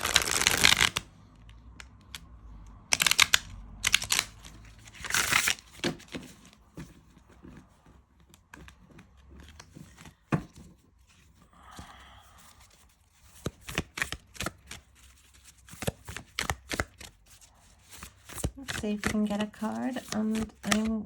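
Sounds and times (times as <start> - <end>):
cards being shuffled by hand: 0.0 - 2.2, 2.9 - 21.0.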